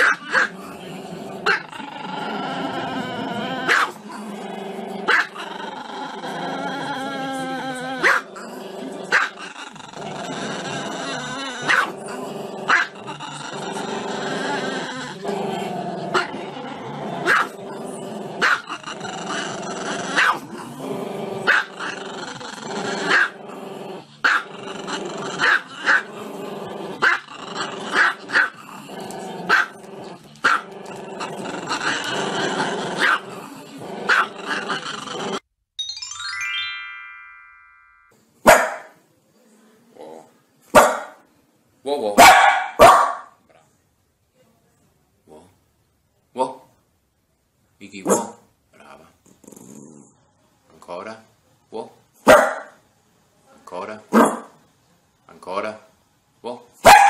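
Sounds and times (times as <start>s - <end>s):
small dog barking: 0.0s - 0.5s, 3.7s - 4.0s, 8.0s - 8.3s, 11.6s - 11.9s, 17.2s - 17.6s, 20.2s - 20.4s, 28.0s - 28.5s, 29.5s - 29.7s, 33.0s - 33.2s, 34.1s - 34.3s, 38.5s - 39.0s, 40.7s - 41.2s, 42.2s - 43.4s, 48.1s - 48.4s, 52.2s - 52.8s, 54.1s - 54.6s
music: 35.8s - 38.1s.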